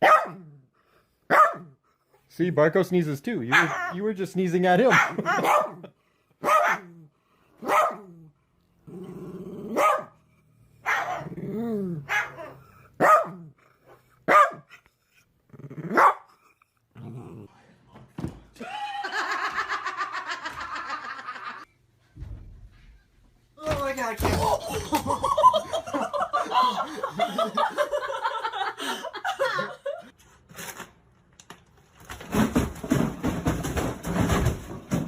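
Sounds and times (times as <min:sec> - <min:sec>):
dog barking: 0:00.0 - 0:00.5, 0:01.3 - 0:01.8, 0:03.5 - 0:04.0, 0:04.9 - 0:07.0, 0:07.6 - 0:08.2, 0:09.7 - 0:10.2, 0:10.8 - 0:11.3, 0:12.0 - 0:13.5, 0:14.3 - 0:14.7, 0:15.9 - 0:16.3.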